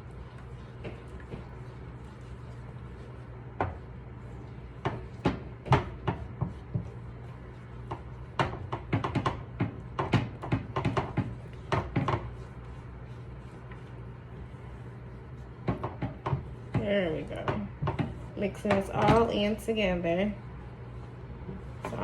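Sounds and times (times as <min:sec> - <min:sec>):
steady low hum: 0:00.0 - 0:22.0
utensil knocking against a pan: 0:04.8 - 0:07.0, 0:07.9 - 0:12.4, 0:15.6 - 0:19.5.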